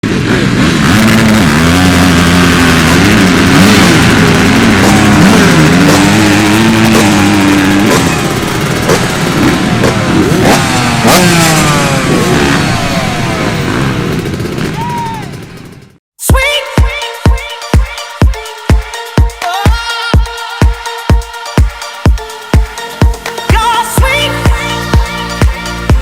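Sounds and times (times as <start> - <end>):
motocross engines revving: 0.0 - 16.0.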